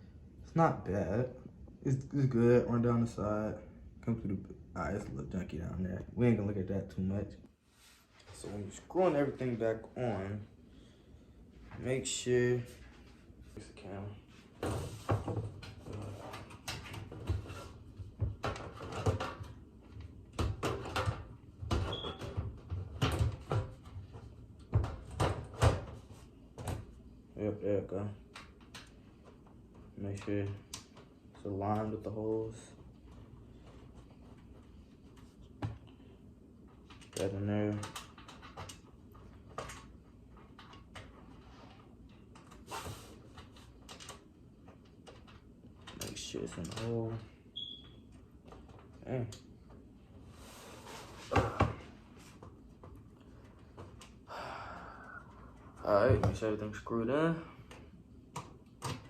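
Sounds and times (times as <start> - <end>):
brief squeak: 47.6 - 48.0.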